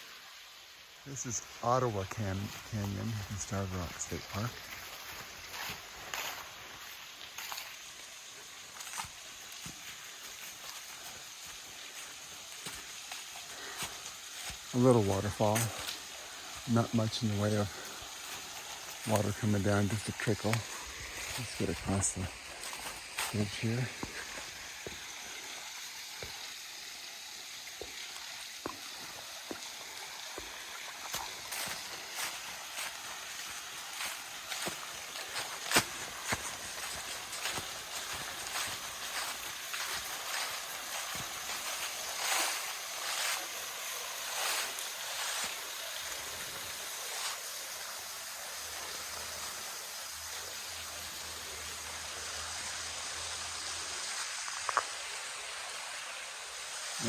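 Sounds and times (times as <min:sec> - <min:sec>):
steady hiss: 0:00.0 - 0:57.0
trickle of small waterfall: 0:00.0 - 0:57.0
footsteps: 0:01.9 - 0:16.8, 0:17.4 - 0:25.5, 0:27.8 - 0:45.6
footsteps on footbridge: 0:34.0 - 0:42.6.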